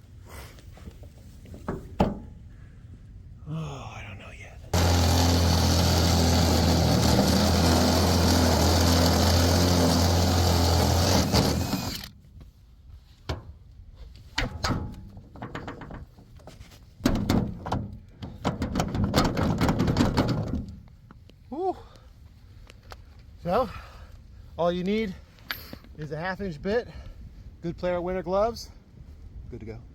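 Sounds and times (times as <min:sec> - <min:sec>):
irregular knocks and clunks: 0:01.6 - 0:02.4, 0:14.4 - 0:16.3
electric drill running: 0:04.8 - 0:12.1.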